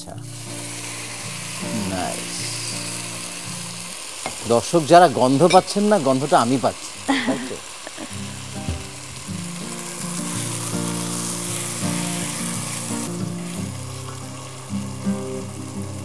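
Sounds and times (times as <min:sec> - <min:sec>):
acoustic guitar chords: 0:00.0 - 0:03.8, 0:08.0 - 0:16.0
rice sizzling in pot: 0:00.0 - 0:16.0.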